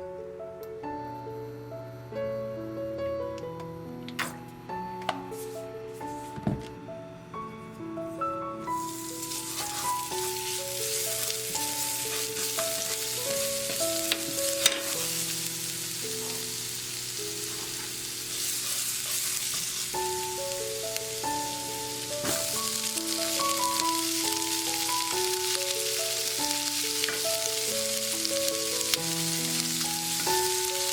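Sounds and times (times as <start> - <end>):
simple background music melody: 0.0 - 18.5, 19.8 - 30.9
stalks sizzling in a pan: 8.6 - 30.9.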